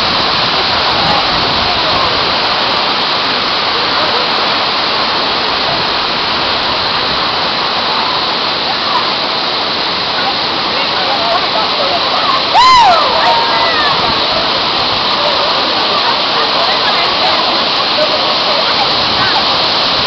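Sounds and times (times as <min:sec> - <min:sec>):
waterfall rushing: 0:00.0 - 0:20.0
faint voices: 0:00.1 - 0:06.1, 0:06.7 - 0:20.0.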